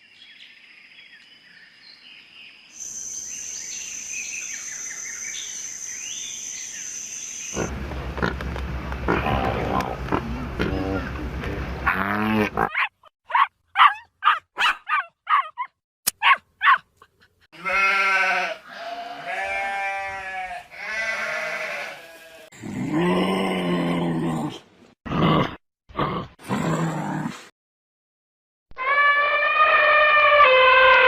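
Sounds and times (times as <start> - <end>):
sheep bleating: 17.6 - 22.4.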